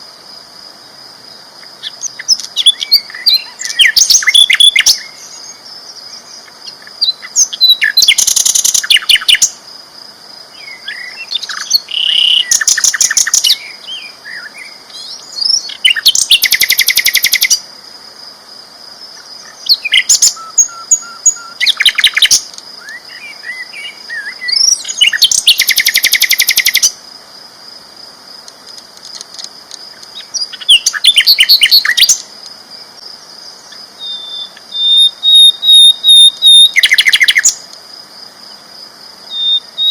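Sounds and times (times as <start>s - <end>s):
flycatcher singing: 1.6s - 9.6s, 10.5s - 17.6s, 19.1s - 27.0s, 29.2s - 32.3s, 33.5s - 37.7s, 39.3s - 39.9s.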